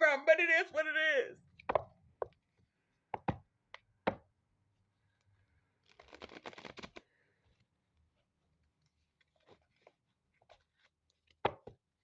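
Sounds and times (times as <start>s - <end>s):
cards riffling clicks: 5.9s - 7.0s.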